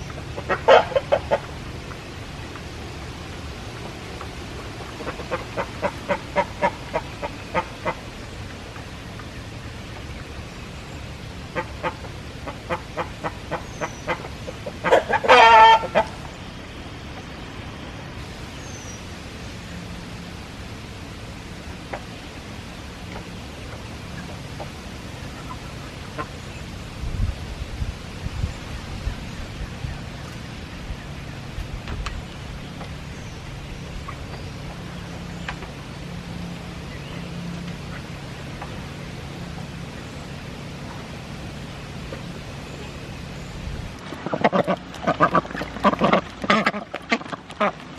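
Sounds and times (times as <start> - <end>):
chickens clucking: 0.0 - 2.0, 4.2 - 8.1, 11.6 - 16.3
low background hiss: 0.0 - 47.9
low hum: 0.0 - 47.9
loud chicken call: 0.5 - 1.4, 14.8 - 16.1.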